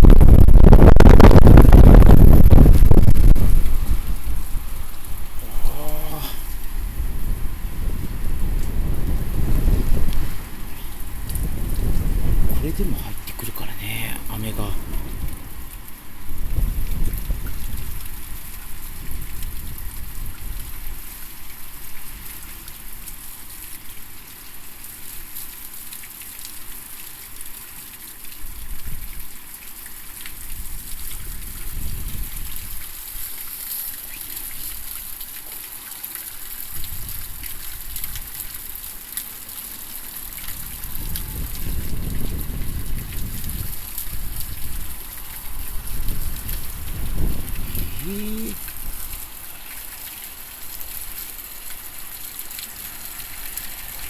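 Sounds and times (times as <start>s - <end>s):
wind gusts buffeting microphone: 0.0s - 13.4s, 14.2s - 15.7s, 16.3s - 20.8s, 30.6s - 32.8s, 40.5s - 49.0s
heavy rain and splashing water: 0.0s - 54.0s.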